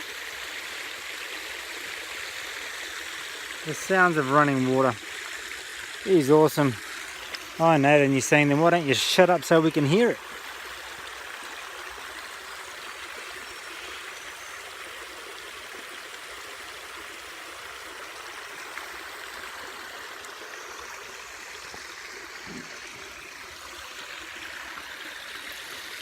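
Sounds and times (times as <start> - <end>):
waterfall and stream rushing: 0.0 - 26.0.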